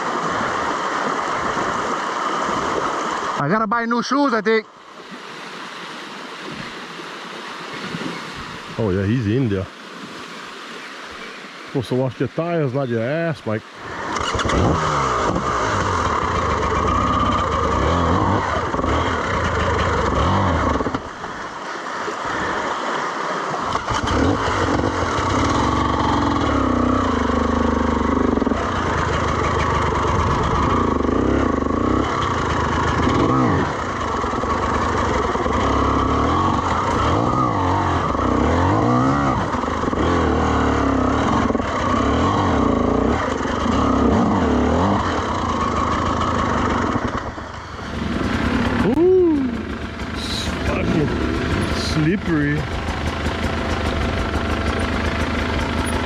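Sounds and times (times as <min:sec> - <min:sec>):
dirt bike engine revving: 0:13.8 - 0:21.1, 0:23.7 - 0:56.0.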